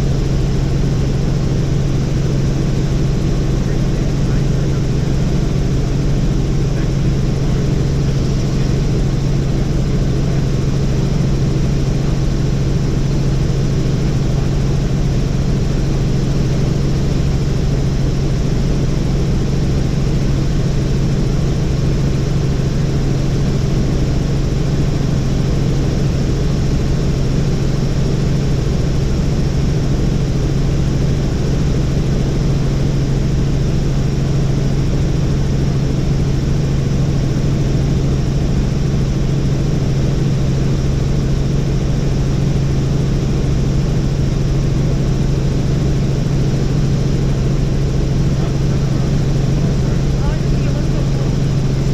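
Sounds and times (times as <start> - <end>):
helicopter engine and rotors: 0.0 - 51.9.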